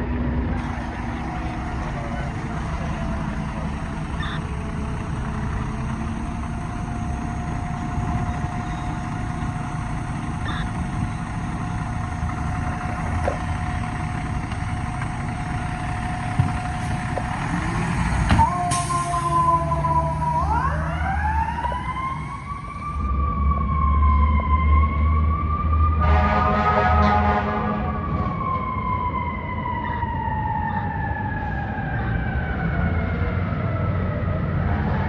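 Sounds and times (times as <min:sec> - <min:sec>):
diesel engine idling: 0:00.0 - 0:23.9
siren: 0:00.4 - 0:35.0.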